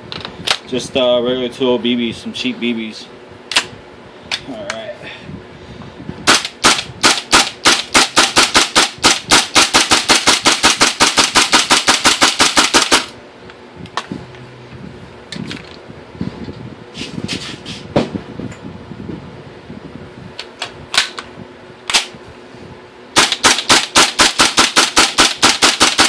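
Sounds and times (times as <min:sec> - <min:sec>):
airsoft rifle firing: 0:06.3 - 0:13.2, 0:23.2 - 0:26.0.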